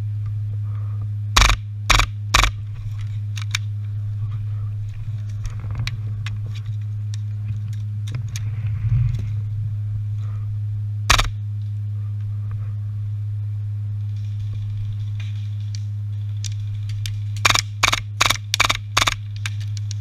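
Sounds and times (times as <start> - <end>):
steady low hum: 0.0 - 20.0
airsoft guns firing: 1.4 - 2.6, 11.1 - 11.4, 17.4 - 19.2.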